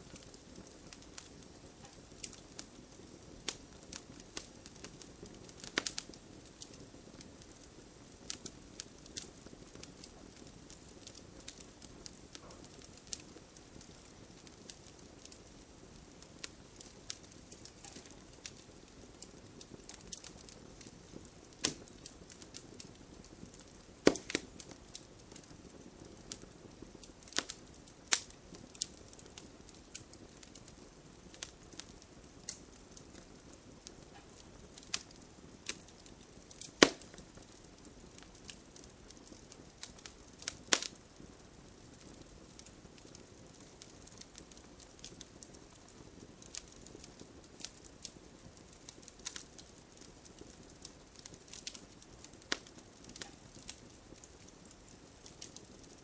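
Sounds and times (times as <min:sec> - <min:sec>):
fireplace fire crackling: 0:00.0 - 0:56.0
sharp pops and snaps: 0:04.4 - 0:06.7, 0:16.8 - 0:18.6, 0:21.5 - 0:22.2, 0:23.5 - 0:24.8, 0:34.1 - 0:37.6, 0:39.3 - 0:41.0, 0:51.2 - 0:54.4.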